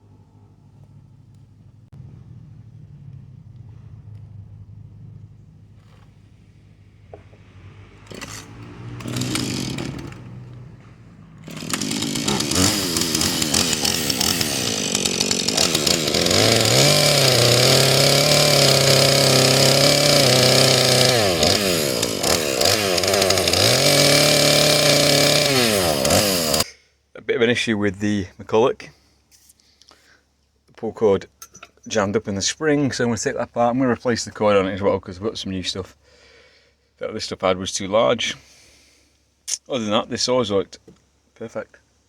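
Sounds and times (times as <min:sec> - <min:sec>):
chainsaw starting and revving: 0:07.6 - 0:26.7.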